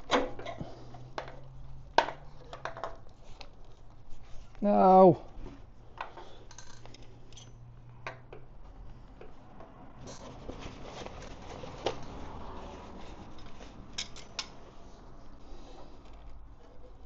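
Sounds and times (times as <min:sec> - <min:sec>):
small parts and tools clicking: 0:06.0 - 0:08.4.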